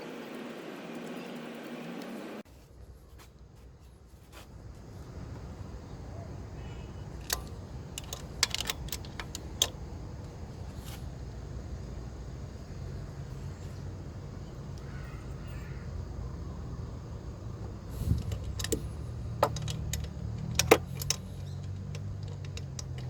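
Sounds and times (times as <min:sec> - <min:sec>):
car engine idling: 0:04.6 - 0:23.0
sharp clicks: 0:07.2 - 0:10.4.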